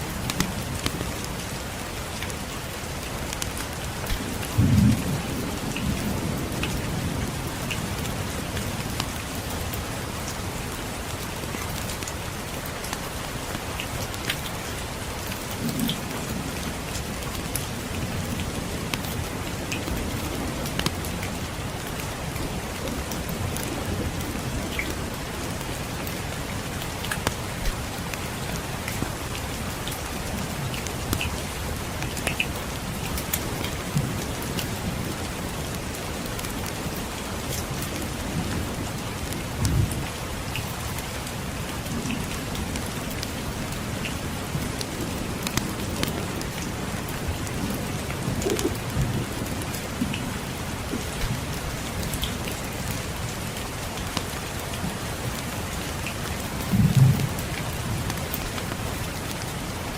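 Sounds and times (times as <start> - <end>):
rain falling: 0.0 - 59.9
distant thunder rumbling: 4.1 - 7.6, 56.7 - 58.2.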